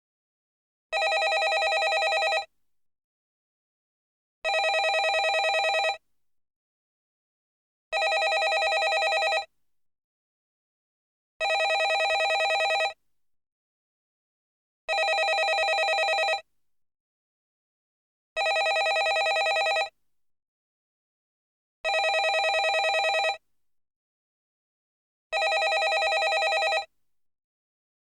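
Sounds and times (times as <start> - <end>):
telephone ringing: 1.0 - 2.5, 4.5 - 6.0, 8.0 - 9.5, 11.4 - 13.0, 14.9 - 16.4, 18.4 - 19.9, 21.9 - 23.4, 25.4 - 26.9.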